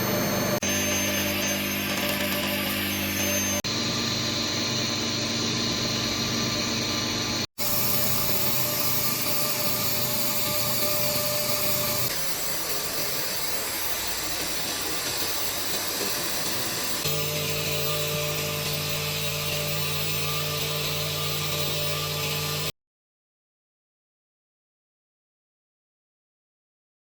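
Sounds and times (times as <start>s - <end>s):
welding equipment hiss and hum: 7.3s - 22.7s.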